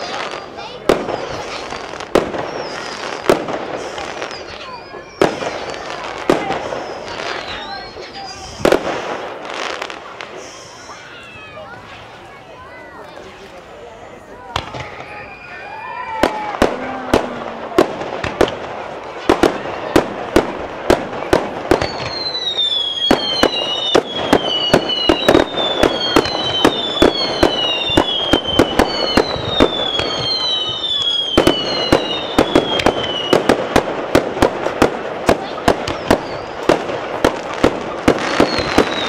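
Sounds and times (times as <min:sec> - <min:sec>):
fireworks bangs: 0:00.0 - 0:12.4, 0:14.3 - 0:39.0
falling firework whistles: 0:01.1 - 0:11.4, 0:14.6 - 0:18.5, 0:21.3 - 0:33.8, 0:35.5 - 0:39.0.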